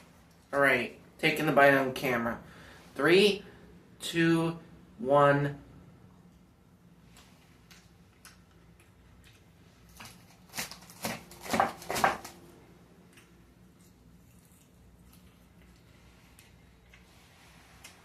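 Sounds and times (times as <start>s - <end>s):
crunchy salad chewing: 13.1s - 17.1s.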